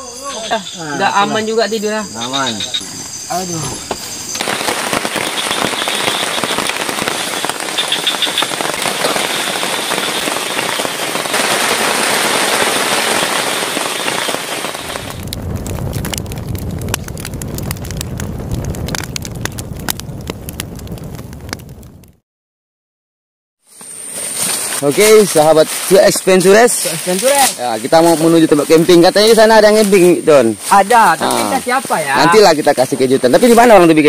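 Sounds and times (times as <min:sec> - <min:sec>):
heavy rain hissing: 0:00.0 - 0:19.0, 0:23.7 - 0:34.0
low rumble with pops and crackles: 0:03.8 - 0:22.2.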